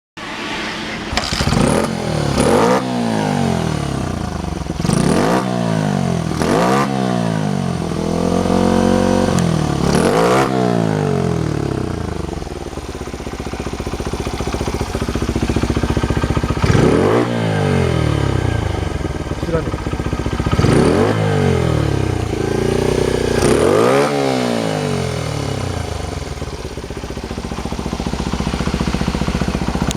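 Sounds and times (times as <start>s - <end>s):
motorcycle engine revving and idling: 1.0s - 29.9s.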